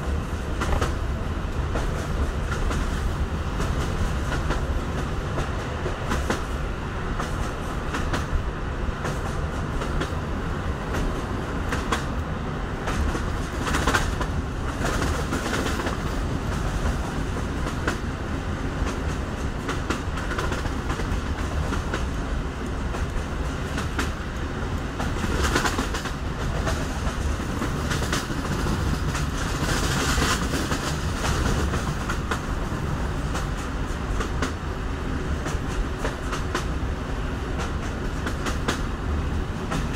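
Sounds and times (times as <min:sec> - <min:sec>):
train rumbling: 0:00.0 - 0:39.9
wheels clacking over rail joints: 0:09.0 - 0:36.8.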